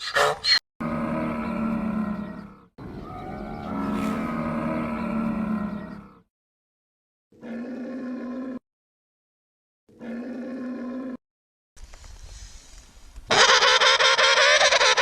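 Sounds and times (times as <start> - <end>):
animal bellowing: 0.8 - 6.2.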